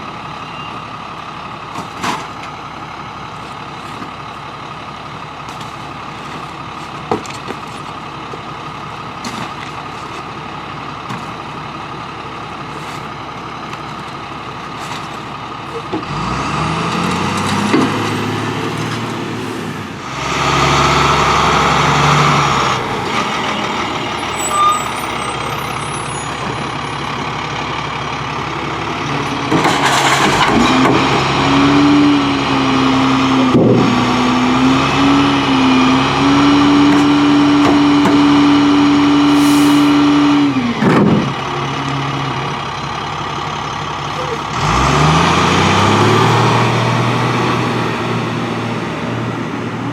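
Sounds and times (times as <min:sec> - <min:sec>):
diesel engine revving: 0:00.0 - 0:49.9
short sharp hisses: 0:39.3 - 0:40.0.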